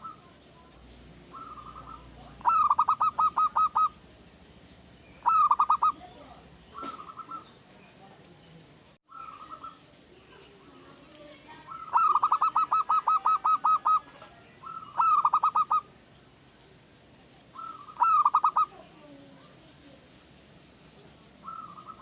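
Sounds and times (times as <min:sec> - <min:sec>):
dove singing rapid coos: 0:01.3 - 0:04.0, 0:05.2 - 0:07.6, 0:09.1 - 0:09.8, 0:11.7 - 0:15.9, 0:17.5 - 0:18.9, 0:21.4 - 0:22.0.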